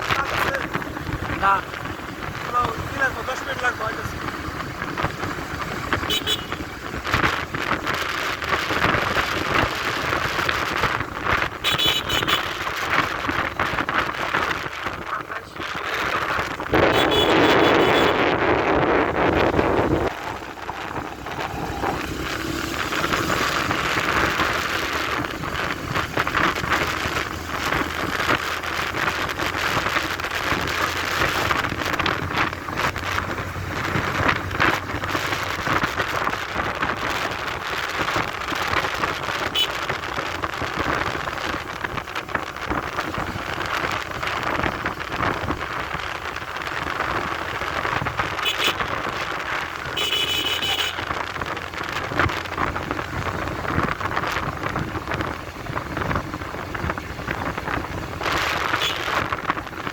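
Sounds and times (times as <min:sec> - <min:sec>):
motorcycle road noise: 0:00.0 - 0:59.9
wind buffeting microphone: 0:00.0 - 0:59.9
motorcycle engine running low: 0:15.9 - 0:59.9.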